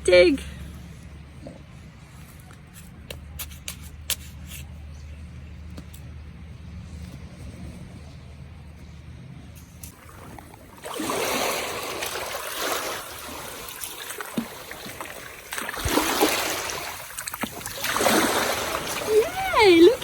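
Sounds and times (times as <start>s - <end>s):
small waves washing on beach: 9.8s - 20.0s.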